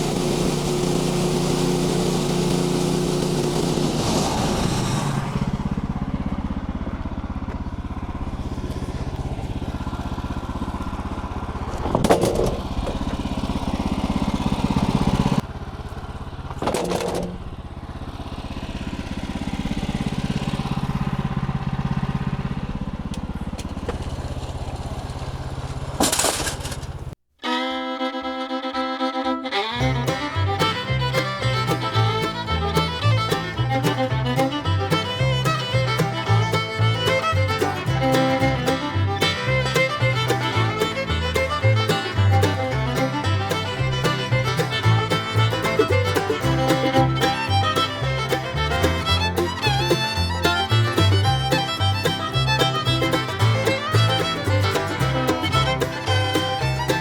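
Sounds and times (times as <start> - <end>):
bluegrass fiddle music: 0.0 - 15.4, 27.4 - 57.0
engine running steadily: 0.0 - 27.2, 29.5 - 57.0.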